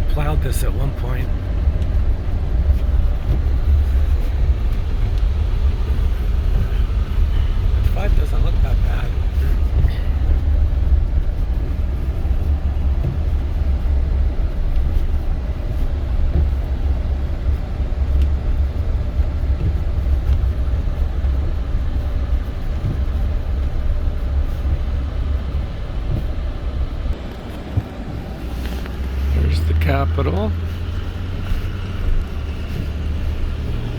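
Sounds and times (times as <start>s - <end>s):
engine and tyre rumble: 0.0s - 33.9s.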